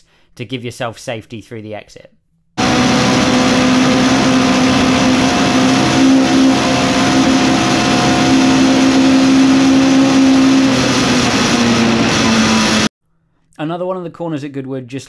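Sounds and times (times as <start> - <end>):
race car engine at high revs: 2.6 - 12.9.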